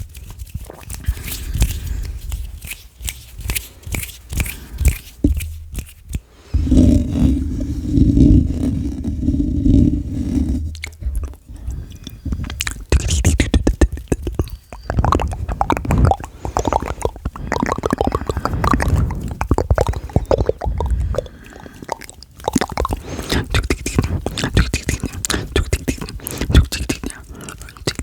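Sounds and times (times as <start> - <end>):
wet mouth clicks and smacks: 0.5 - 6.3, 10.6 - 28.0.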